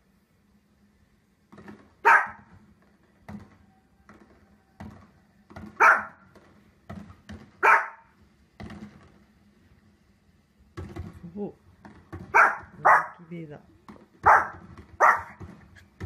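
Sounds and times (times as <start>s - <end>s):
small dog barking: 2.0s - 2.5s, 5.8s - 6.2s, 7.6s - 8.1s, 12.3s - 13.3s, 14.2s - 15.4s.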